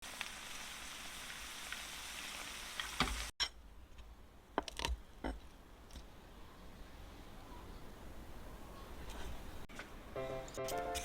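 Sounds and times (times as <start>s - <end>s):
food sizzling in oil: 0.0s - 3.3s.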